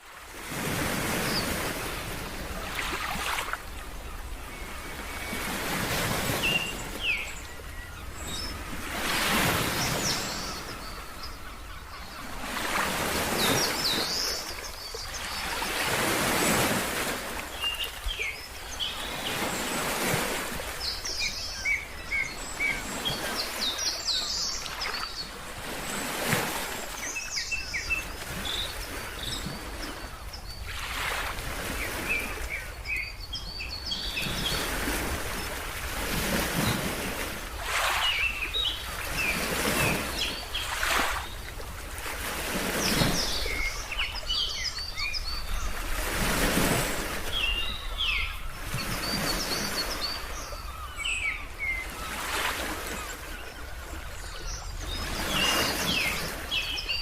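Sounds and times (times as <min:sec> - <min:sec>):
birds chirping: 0:01.0 - 0:41.6, 0:42.2 - 0:57.0
ocean waves washing in: 0:12.3 - 0:48.2.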